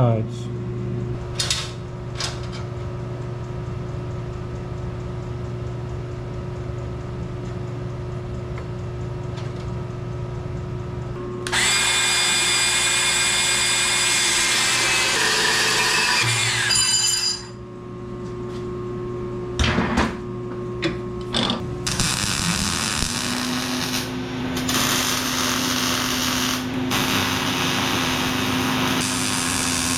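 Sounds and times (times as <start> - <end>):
steady low hum: 0.0 - 11.5, 17.5 - 29.9
power tool high-pitched whine: 11.4 - 17.6, 21.8 - 29.9.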